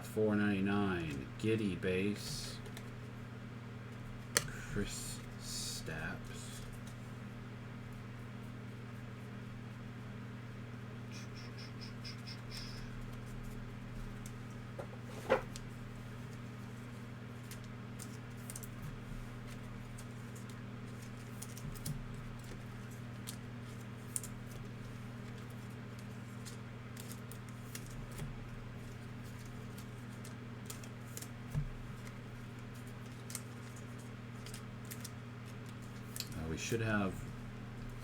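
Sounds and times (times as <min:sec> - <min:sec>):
low electrical hum: 0:00.0 - 0:38.0
trading cards and wrappers rustling: 0:31.9 - 0:36.8.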